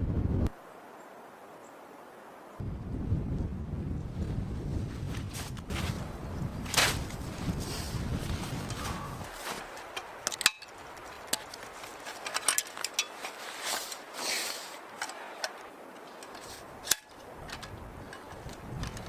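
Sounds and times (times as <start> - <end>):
brief rustles: 4.9 - 19.0
small clicks and ticks: 14.8 - 19.0.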